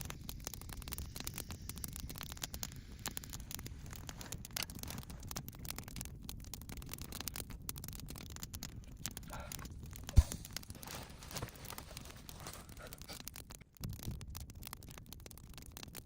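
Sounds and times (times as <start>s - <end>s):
twigs and leaves crackling: 0.0s - 16.0s
dull heavy thump: 10.2s - 10.6s.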